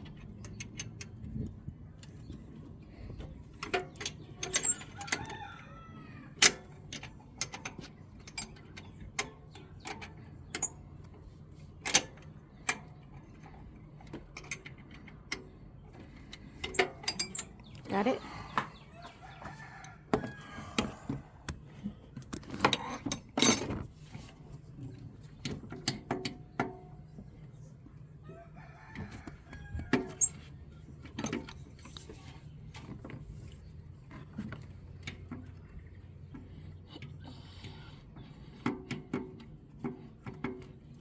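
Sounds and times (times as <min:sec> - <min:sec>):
rooster crowing: 0:05.0 - 0:06.4, 0:18.9 - 0:21.4, 0:28.2 - 0:30.4.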